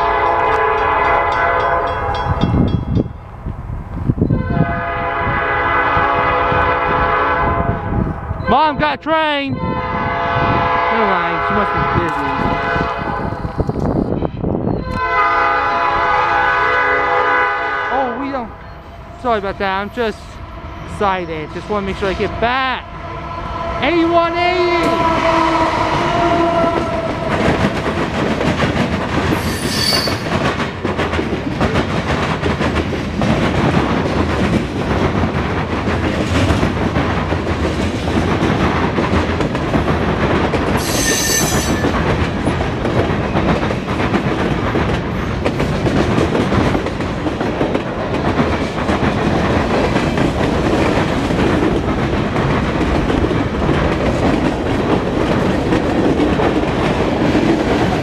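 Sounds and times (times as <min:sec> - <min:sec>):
train horn: 0:00.0 - 0:02.4, 0:04.3 - 0:08.6, 0:09.6 - 0:13.5, 0:14.8 - 0:18.2, 0:23.0 - 0:27.6, 0:40.8 - 0:41.9
freight cars rumbling and clacking: 0:24.8 - 0:29.4, 0:30.0 - 0:40.8, 0:41.6 - 0:58.0
high wheel squeals: 0:29.3 - 0:30.3, 0:40.8 - 0:42.0.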